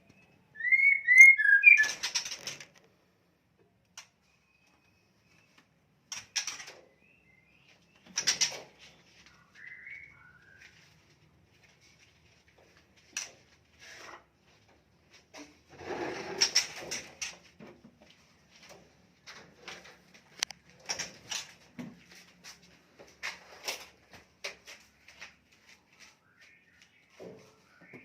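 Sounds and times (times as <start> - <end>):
handling knocks and rustles: 10.7 - 26.2
scraping rustle: 15.2 - 17.6.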